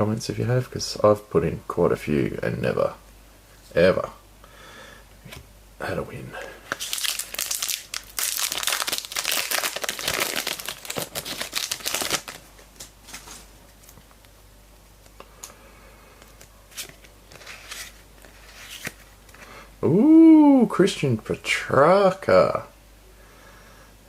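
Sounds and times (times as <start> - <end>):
foil wrapper tearing and crinkling: 6.7 - 12.5.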